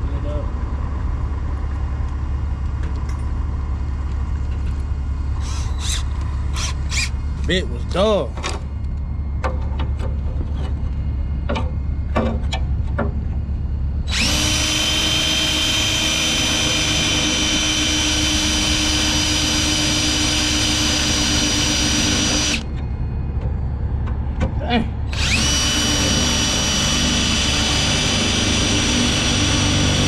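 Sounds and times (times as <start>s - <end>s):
low steady rumble: 0.0s - 30.0s
cordless drill drilling steel: 5.4s - 7.2s, 14.1s - 22.7s, 25.1s - 30.0s.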